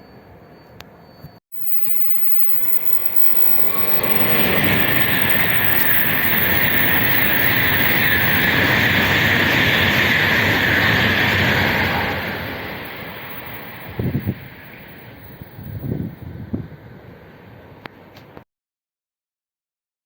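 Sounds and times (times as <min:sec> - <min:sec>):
high-speed train passing: 0:00.2 - 0:18.4.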